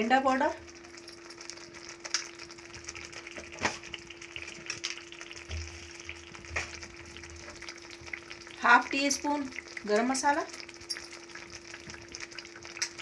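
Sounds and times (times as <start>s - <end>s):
gravy sizzling in a pan: 0.0s - 13.0s.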